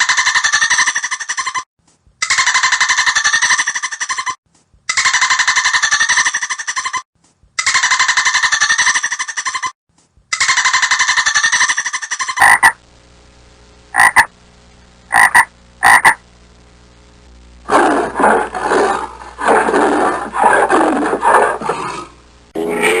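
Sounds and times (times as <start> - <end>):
frogs calling: 10.4 - 12.8, 13.9 - 14.3, 15.1 - 16.2.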